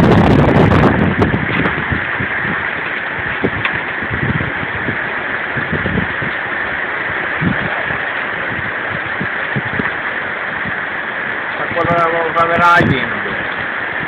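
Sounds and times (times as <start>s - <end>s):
heavy rain falling: 0.0s - 14.0s
wind buffeting microphone: 0.0s - 14.0s.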